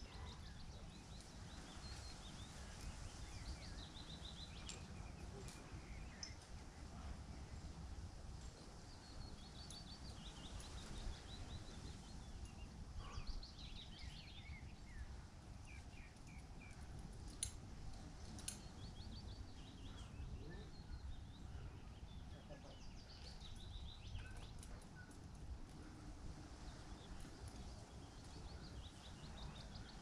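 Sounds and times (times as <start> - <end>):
small birds singing: 0.0 - 30.0.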